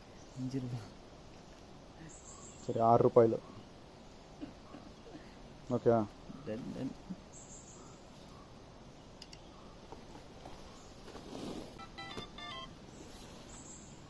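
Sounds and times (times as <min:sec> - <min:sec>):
faint steady background noise: 0:00.0 - 0:14.0
short electronic beeps: 0:11.8 - 0:12.7.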